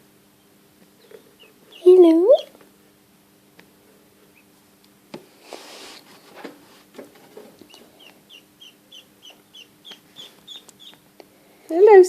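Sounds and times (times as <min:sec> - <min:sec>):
duckling peeping: 0:00.4 - 0:02.6, 0:04.2 - 0:04.6, 0:07.5 - 0:11.2
rustling: 0:05.3 - 0:07.9.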